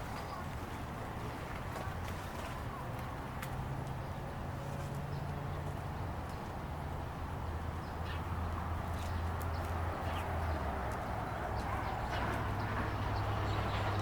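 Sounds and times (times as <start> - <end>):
distant traffic rumble: 0.0 - 14.0
songbird chirps: 4.8 - 14.0.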